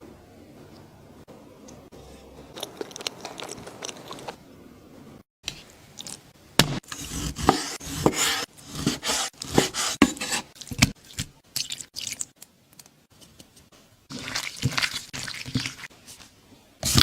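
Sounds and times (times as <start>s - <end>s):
crisp food crunching and scraping: 2.5s - 4.4s.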